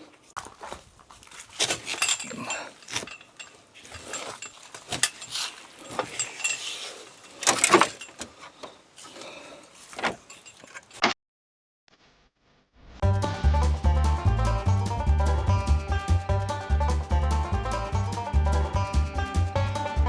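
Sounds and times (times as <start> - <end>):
plastic clatter: 7.3 - 8.8.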